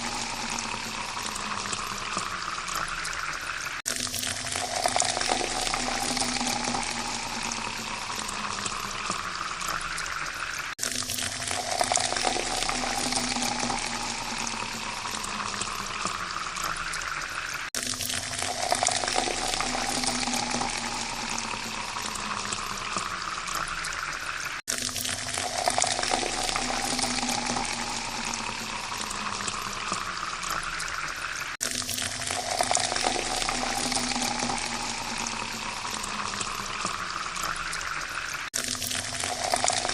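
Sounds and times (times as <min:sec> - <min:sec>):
water pouring into a glass: 0:00.0 - 0:39.9.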